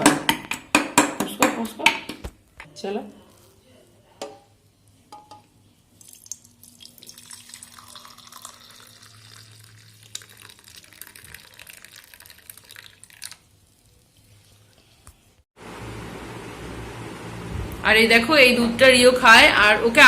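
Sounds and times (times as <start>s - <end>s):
thin stream of liquid splashing: 6.0s - 14.8s.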